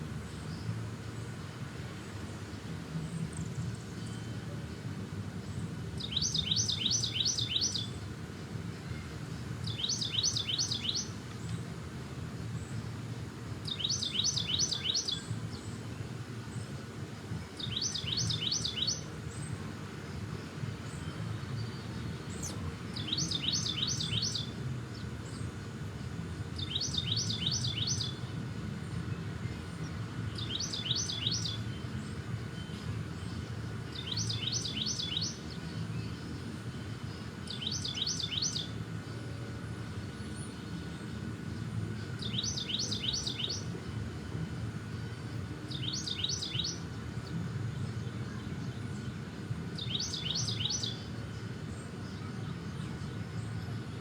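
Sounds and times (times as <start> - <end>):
songbird singing: 0.2 - 54.0.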